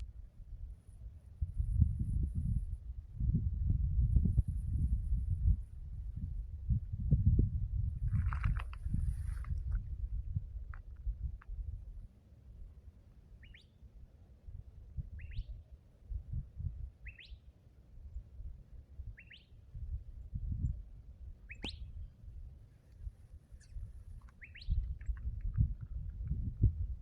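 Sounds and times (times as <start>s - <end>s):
small bird chirping: 13.4s - 13.8s, 15.2s - 15.7s, 17.0s - 17.5s, 19.2s - 19.6s, 21.5s - 22.1s, 23.5s - 25.7s.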